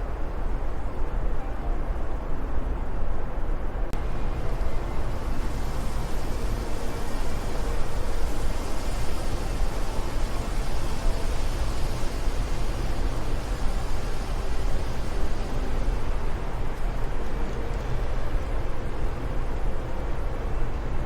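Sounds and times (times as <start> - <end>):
wind noise: 0.0 - 21.0.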